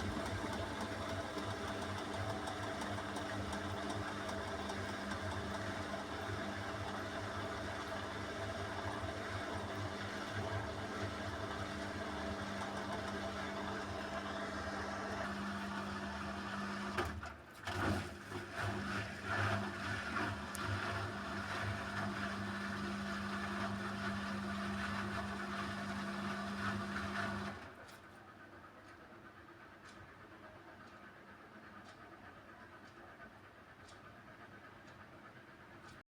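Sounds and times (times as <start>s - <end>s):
washing machine spin drone: 0.0s - 36.0s.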